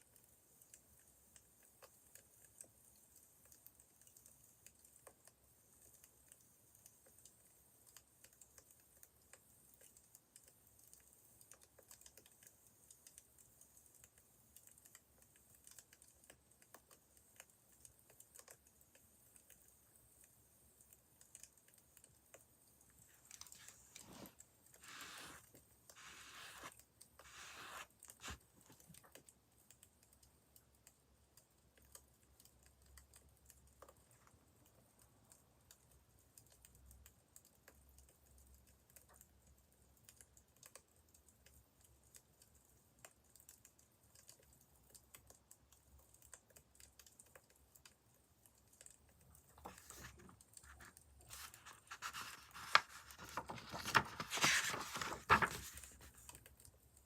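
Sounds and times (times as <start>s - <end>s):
wood fire crackling: 46.2s - 57.0s.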